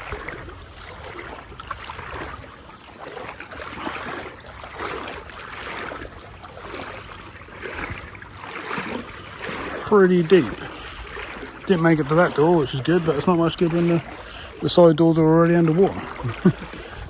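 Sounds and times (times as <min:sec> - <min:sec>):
water sloshing around wading legs: 0:00.0 - 0:17.0.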